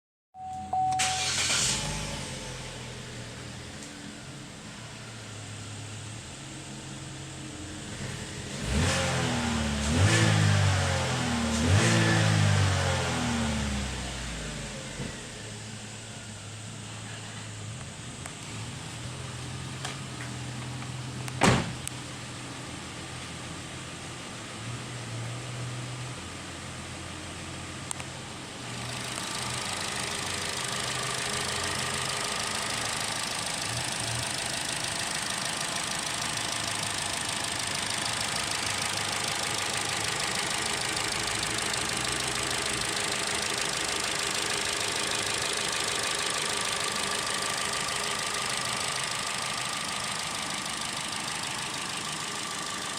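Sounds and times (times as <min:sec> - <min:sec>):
car engine running: 0:26.1 - 0:52.9
click: 0:27.9 - 0:28.1.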